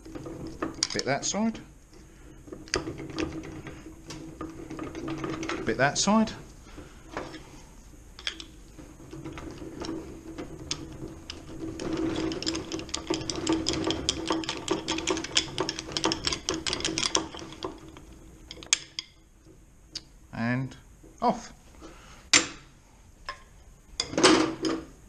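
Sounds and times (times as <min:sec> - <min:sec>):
rapid metal-on-metal clicking: 0:00.0 - 0:07.3, 0:08.2 - 0:19.6.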